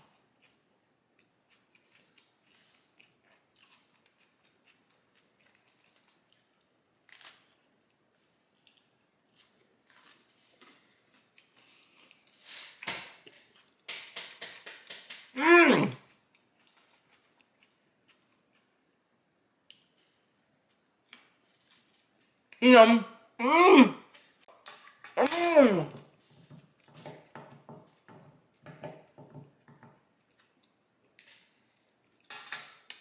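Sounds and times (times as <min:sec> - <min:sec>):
salad crunching while chewing: 0:01.2 - 0:13.8
person humming: 0:15.4 - 0:16.0, 0:22.6 - 0:24.1, 0:25.2 - 0:25.9.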